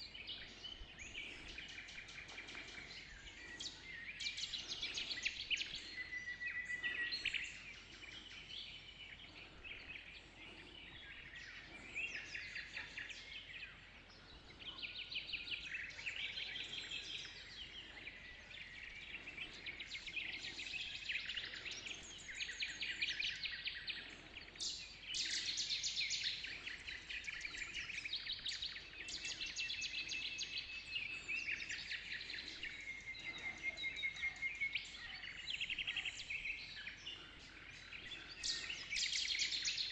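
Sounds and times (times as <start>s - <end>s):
songbirds chirping and trilling: 0.0s - 39.9s
whistled bird notes: 14.7s - 39.9s.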